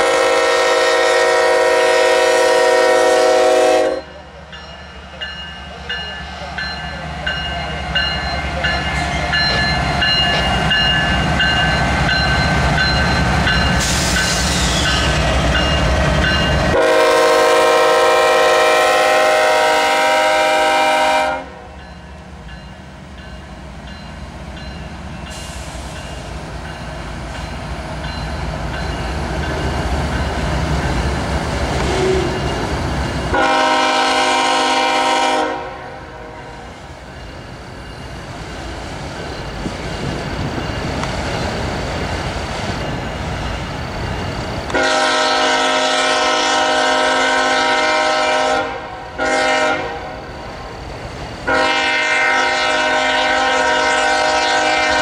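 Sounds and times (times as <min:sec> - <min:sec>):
train air horn blast: 0:00.0 - 0:04.2, 0:16.7 - 0:21.7, 0:33.3 - 0:36.7, 0:44.7 - 0:50.2, 0:51.5 - 0:55.0
diesel locomotive engines rumbling: 0:00.0 - 0:55.0.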